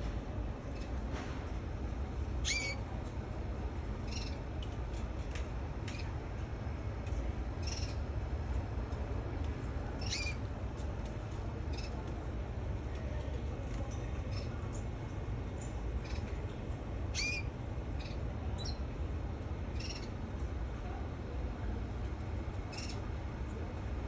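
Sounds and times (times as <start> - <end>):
canary chirping: 2.4 - 2.8, 4.1 - 4.4, 7.6 - 8.0, 10.0 - 10.4, 17.1 - 18.8, 19.7 - 20.1, 22.7 - 23.0.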